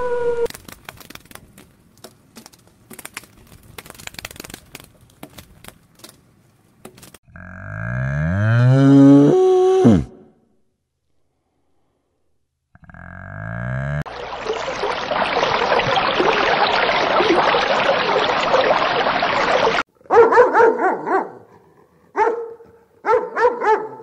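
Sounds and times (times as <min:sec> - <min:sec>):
dog barking: 0:20.0 - 0:24.0.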